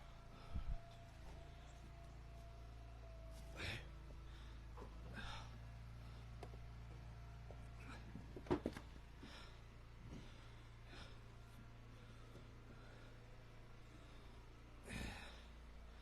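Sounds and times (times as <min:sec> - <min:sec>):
low steady hum: 0:00.0 - 0:16.0
man breathing: 0:03.5 - 0:06.6, 0:09.1 - 0:16.0.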